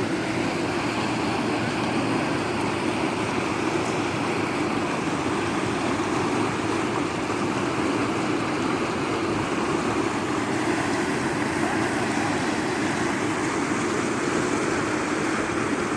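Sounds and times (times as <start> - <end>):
river water rushing: 0.0 - 15.9.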